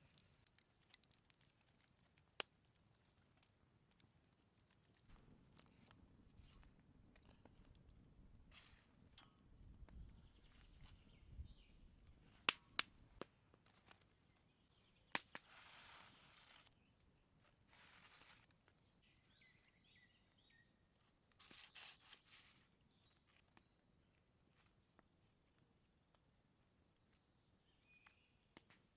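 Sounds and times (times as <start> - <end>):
faint bird chirps: 9.9 - 12.4, 14.2 - 25.2, 27.2 - 28.9.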